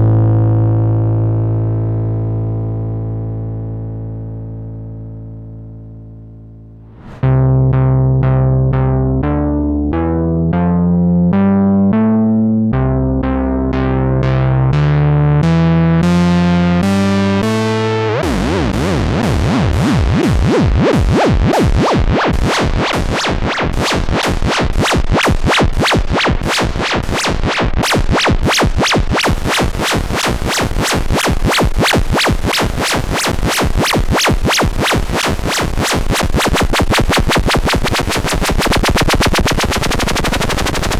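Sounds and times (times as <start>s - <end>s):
analog synthesizer sequenced notes: 8.2s - 40.9s.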